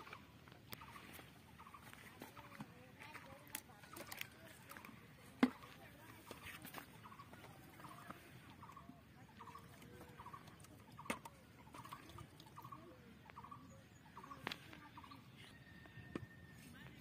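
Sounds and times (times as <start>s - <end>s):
faint bird chirping: 0.0s - 4.9s, 5.5s - 17.0s.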